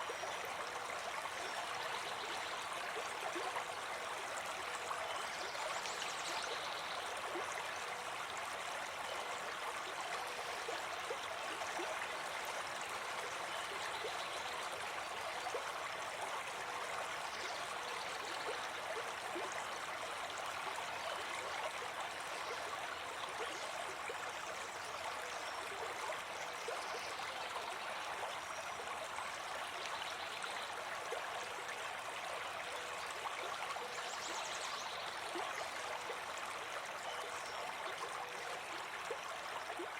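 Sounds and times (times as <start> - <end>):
brook babbling: 0.0 - 39.9.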